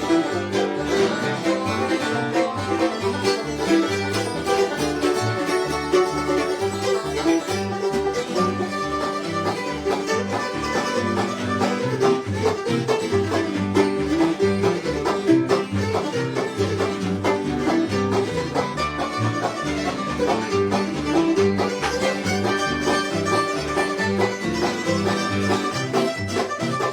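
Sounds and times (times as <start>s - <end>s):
banjo picking: 0.0s - 26.9s
bass notes: 0.0s - 26.9s
fiddle: 0.0s - 26.9s
guitar: 0.0s - 26.9s.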